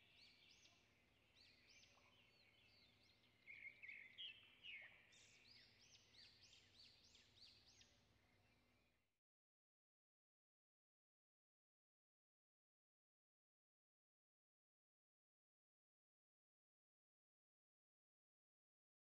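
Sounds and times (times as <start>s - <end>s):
faint birdsong chirps: 0.0s - 9.1s.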